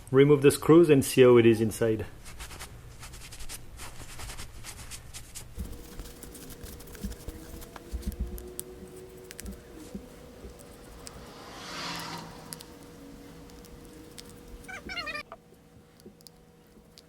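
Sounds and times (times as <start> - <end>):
faint steady hum: 4.6 - 17.0.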